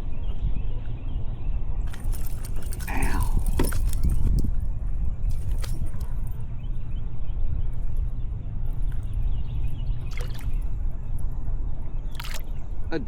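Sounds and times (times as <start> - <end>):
wind rumble on microphone: 0.0 - 13.0
water trickling and lapping: 9.9 - 11.3, 12.0 - 12.7.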